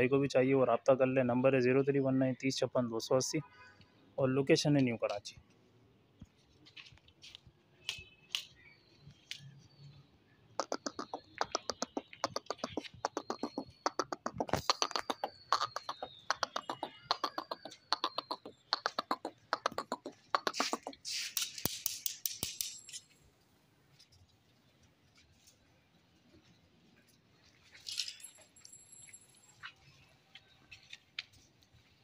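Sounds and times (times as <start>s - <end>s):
bird calling with sharp clicks: 7.8s - 9.6s, 10.6s - 23.1s.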